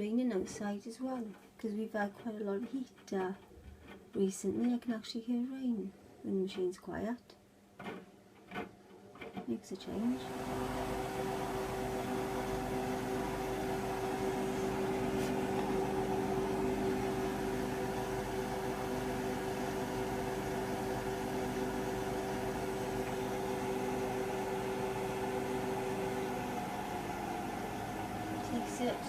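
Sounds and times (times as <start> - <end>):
washing machine running: 9.9 - 29.0.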